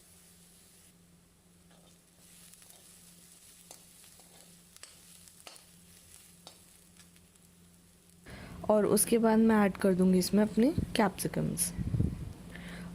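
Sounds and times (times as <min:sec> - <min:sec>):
vegetables sizzling in oil: 0:00.0 - 0:09.5.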